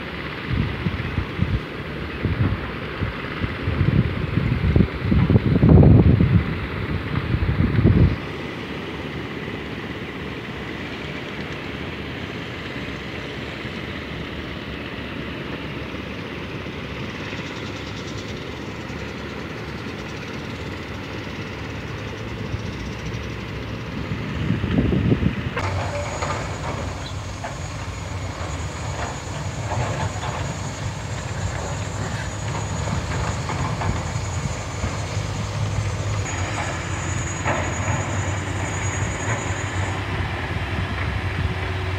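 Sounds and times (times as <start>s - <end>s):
diesel engine running: 0.0s - 41.9s
steel tracks clanking: 0.1s - 41.9s.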